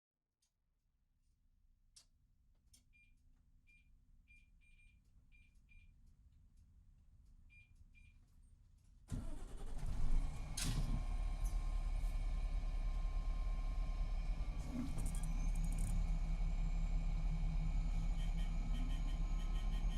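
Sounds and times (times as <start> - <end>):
diesel engine starting and running: 9.1 - 19.9.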